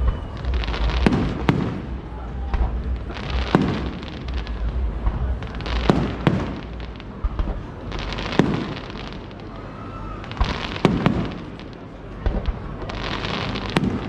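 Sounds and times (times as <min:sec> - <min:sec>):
low rumble: 0:00.0 - 0:05.8
firework bangs: 0:00.0 - 0:14.0
fireworks crackling: 0:00.0 - 0:14.0.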